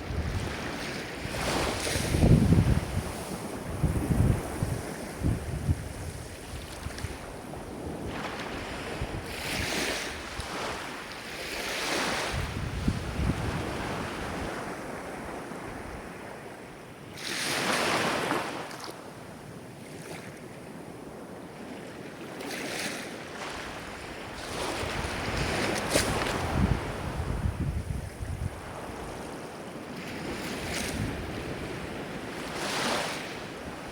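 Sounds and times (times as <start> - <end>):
wind rumble on microphone: 0.0 - 16.6, 23.4 - 33.9
ocean waves breaking: 0.0 - 19.1, 21.6 - 33.9.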